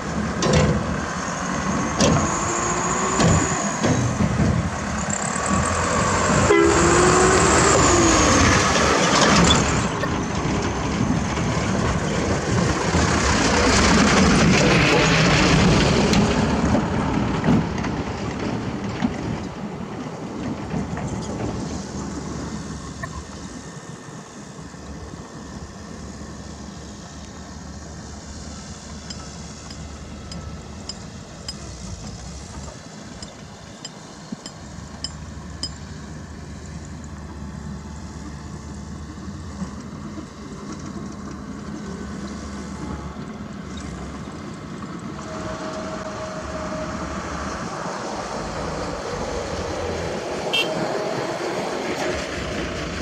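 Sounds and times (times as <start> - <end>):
diesel machinery rumbling: 0.0 - 53.0
short steady tone: 50.5 - 50.8.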